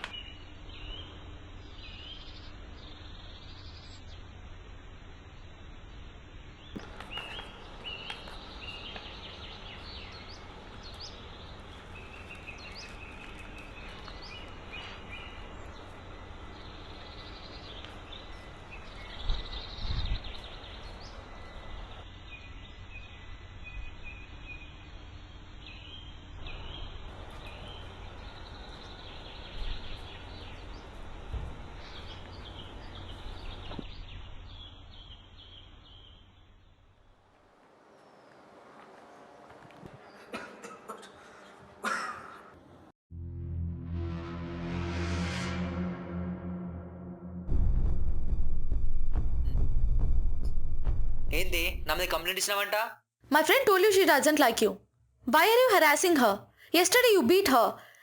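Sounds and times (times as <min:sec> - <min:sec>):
small birds chirping: 0:00.0 - 0:04.6, 0:05.2 - 0:36.8
steady low hum: 0:00.0 - 0:37.6.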